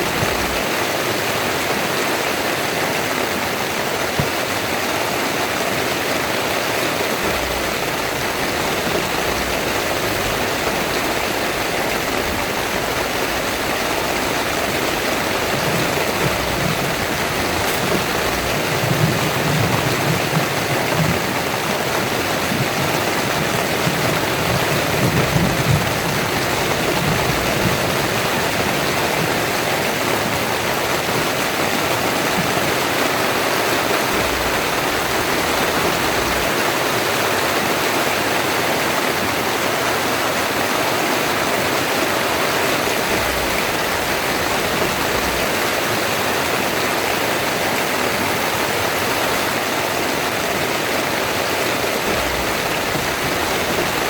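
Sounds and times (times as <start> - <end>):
heavy rain pouring: 0.0 - 54.0
low rumbling: 7.0 - 37.2.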